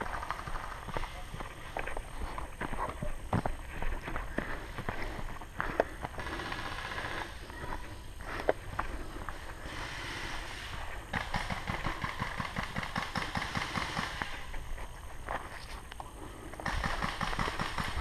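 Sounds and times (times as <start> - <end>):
footsteps: 0.0 - 12.1, 14.2 - 17.1
sharp cracks: 11.1 - 14.5, 16.6 - 18.0.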